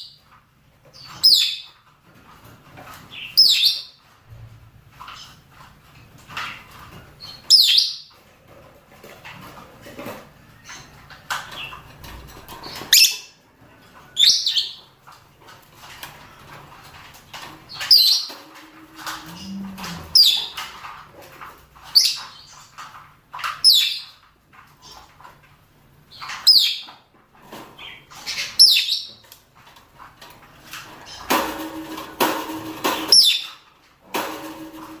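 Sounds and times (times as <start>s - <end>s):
lovebirds chirping: 17.7s - 20.6s.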